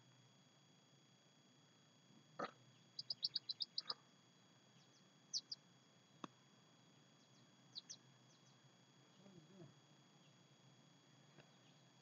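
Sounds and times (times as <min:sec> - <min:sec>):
small bird chirping: 0:02.4 - 0:04.0, 0:04.7 - 0:05.6, 0:07.2 - 0:09.6.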